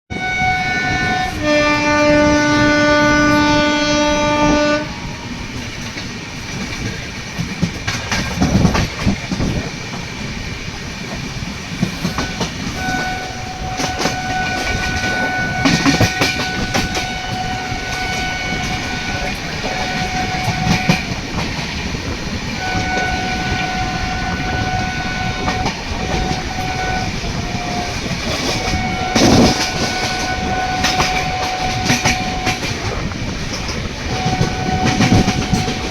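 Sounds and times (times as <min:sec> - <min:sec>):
train horn blast: 0:00.1 - 0:05.5, 0:12.1 - 0:21.2, 0:22.6 - 0:33.2, 0:34.1 - 0:35.9
coaches clattering over rail joints: 0:04.5 - 0:35.9.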